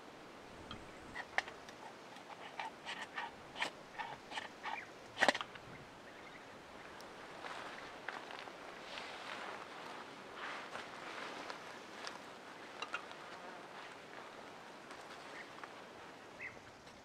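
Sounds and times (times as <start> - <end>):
small clicks and scrapes of handling: 0.7 - 5.6.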